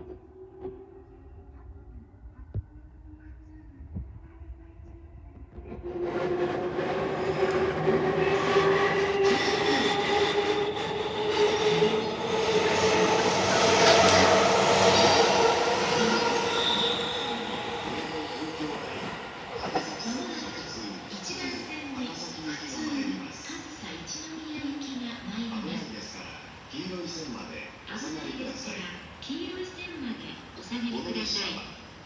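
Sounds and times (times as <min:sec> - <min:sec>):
electric train passing: 0:04.4 - 0:27.6
train motor whine: 0:05.5 - 0:21.0.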